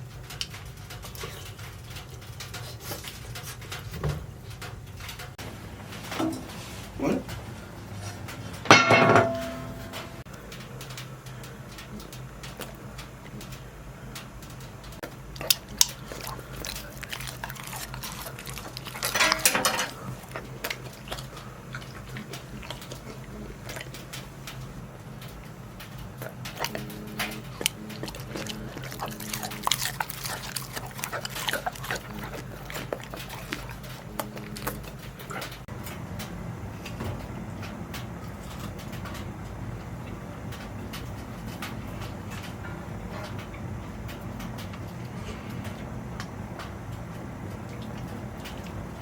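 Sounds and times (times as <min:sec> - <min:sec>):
steady low hum: 0:00.0 - 0:49.0
dog vocalizing: 0:06.9 - 0:08.3, 0:15.1 - 0:35.7.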